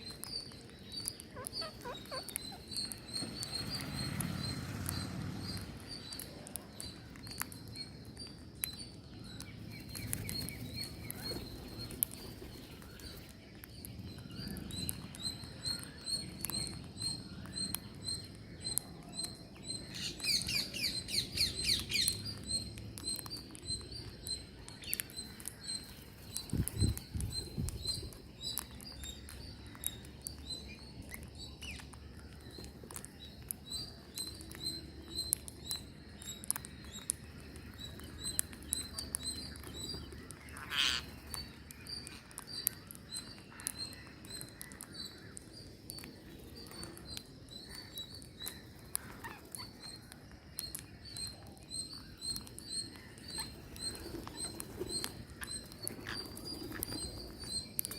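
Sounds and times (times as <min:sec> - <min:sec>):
parrots chirping: 0:00.0 - 0:08.4, 0:09.1 - 0:13.3, 0:19.9 - 0:57.9
parrots warbling: 0:01.3 - 0:03.0, 0:40.5 - 0:41.2, 0:48.9 - 0:49.7.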